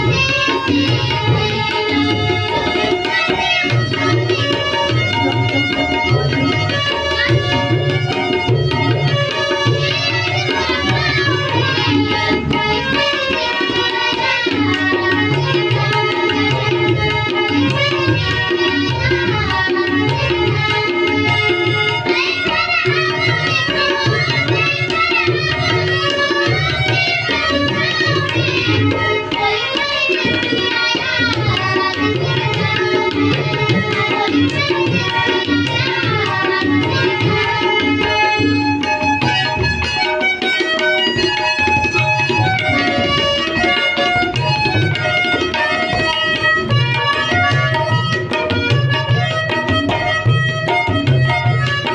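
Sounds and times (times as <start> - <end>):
tabla playing: 0.0 - 51.9
wavering vocal melody: 0.0 - 51.9.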